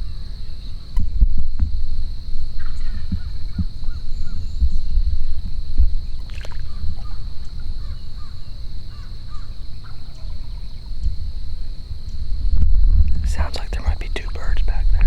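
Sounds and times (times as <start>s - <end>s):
steady high whine: 0.0s - 15.0s
wind rumble on microphone: 0.0s - 15.0s
wild birds calling: 6.0s - 11.8s.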